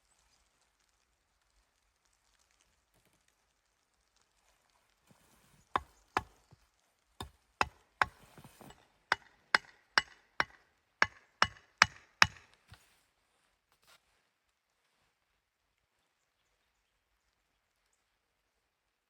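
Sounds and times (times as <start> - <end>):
axe chopping wood: 5.8 - 6.4, 7.2 - 12.6.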